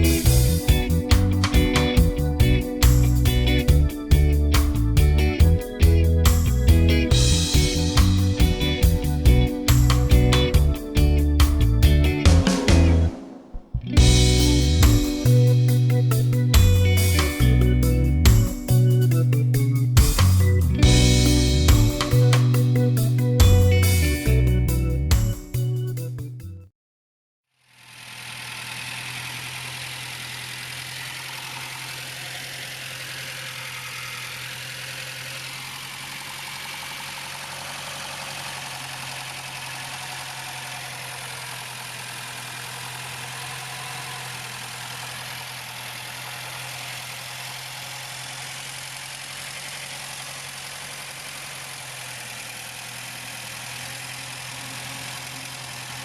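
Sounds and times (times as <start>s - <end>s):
car engine idling: 0.0s - 25.8s, 27.9s - 56.0s.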